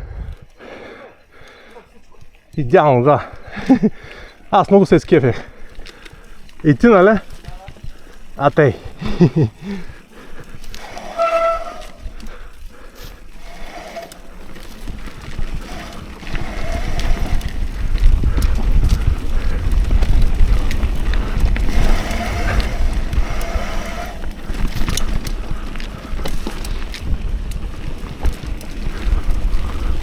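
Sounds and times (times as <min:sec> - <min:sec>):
bike rattling clicks and knocks: 0:01.5 - 0:30.0
wind buffeting microphone: 0:05.0 - 0:30.0
heavy rumble: 0:09.7 - 0:30.0.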